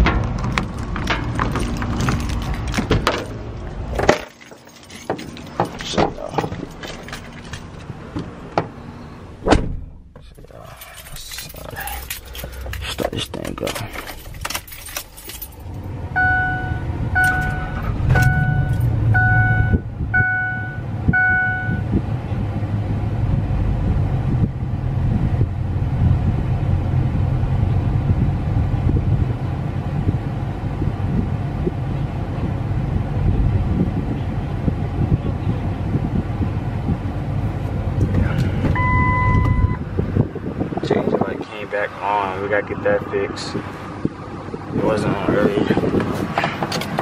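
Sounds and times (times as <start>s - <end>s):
dashboard warning chime: 16.2s - 21.9s, 38.8s - 39.8s.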